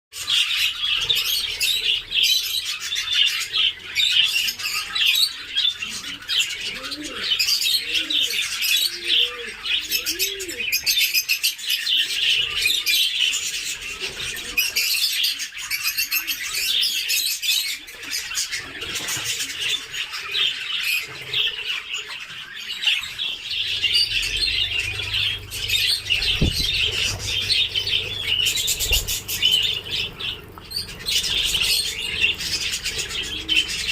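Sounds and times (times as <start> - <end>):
low arching bird calls: 0.1 - 33.9
budgerigars chirping and chattering: 0.2 - 33.9
low thump: 26.2 - 27.1.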